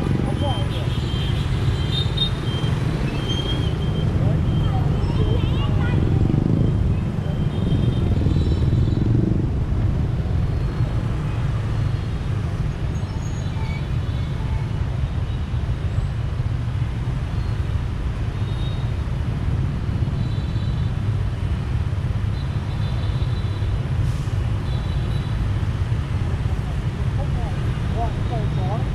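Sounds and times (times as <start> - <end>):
motorbike engine and wind rumble: 0.0 - 22.3
faint surrounding traffic: 0.0 - 28.9.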